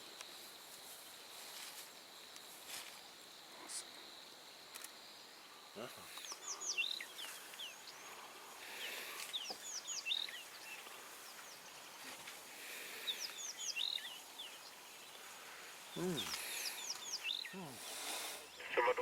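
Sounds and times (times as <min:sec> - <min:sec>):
songbird singing: 0:00.0 - 0:19.0.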